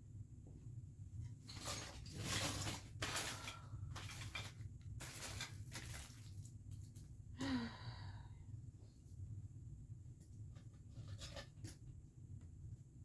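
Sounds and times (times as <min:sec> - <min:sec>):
rustling handling noises: 0:01.2 - 0:07.2
steady low hum: 0:02.7 - 0:13.0.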